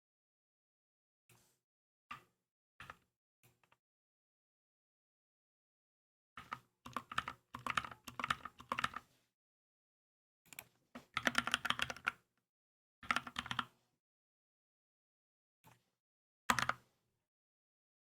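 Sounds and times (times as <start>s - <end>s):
mechanical keyboard typing: 6.4s - 9.0s, 11.2s - 12.2s, 13.0s - 13.6s, 16.5s - 16.8s.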